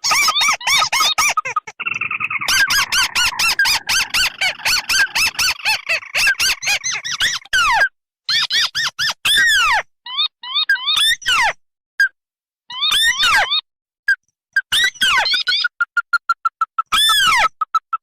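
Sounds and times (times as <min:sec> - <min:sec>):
buzzy bird trill: 0:00.0 - 0:08.9
crakes calling: 0:01.2 - 0:07.5.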